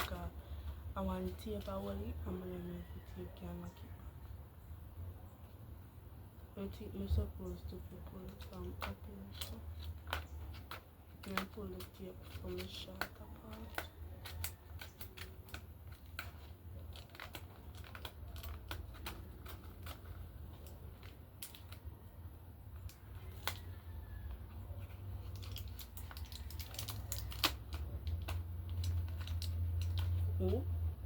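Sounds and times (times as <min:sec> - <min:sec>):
clicks of handling packaging: 0:08.3 - 0:21.9, 0:25.2 - 0:30.6
tape being pulled: 0:08.3 - 0:21.9, 0:22.7 - 0:30.6.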